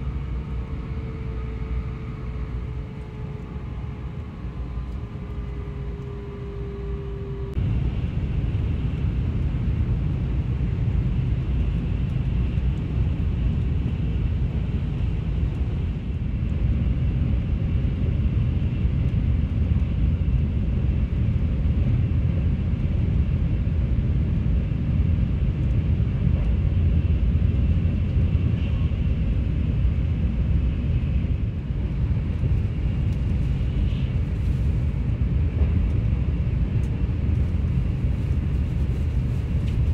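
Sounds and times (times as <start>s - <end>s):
train rumble inside passenger car: 0.0s - 39.9s.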